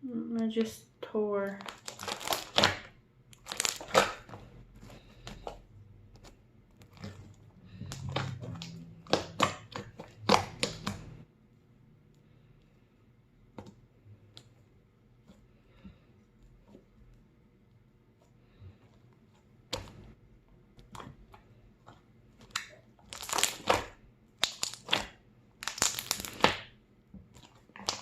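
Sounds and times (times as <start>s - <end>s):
wet squelching of slime: 1.4s - 11.3s, 18.3s - 28.0s.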